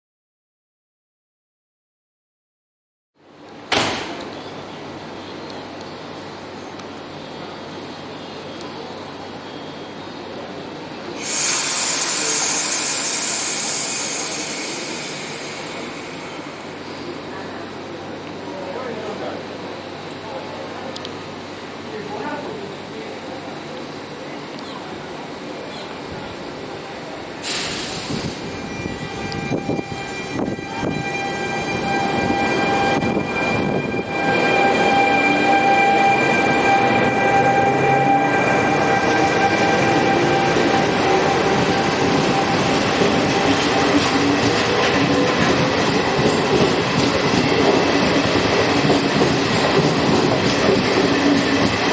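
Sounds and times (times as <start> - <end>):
train standing noise: 3.4 - 7.2, 11.0 - 18.4, 25.6 - 51.9
air brakes hissing: 11.2 - 17.1, 27.4 - 28.6.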